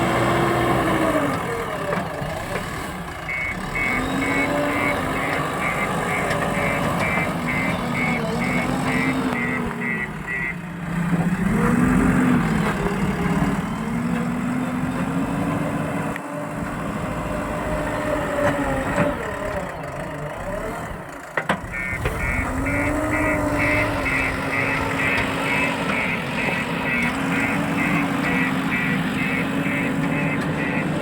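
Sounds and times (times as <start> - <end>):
diesel engine revving: 0.0 - 31.0
reversing alarm beeping: 3.3 - 10.6, 21.6 - 31.0.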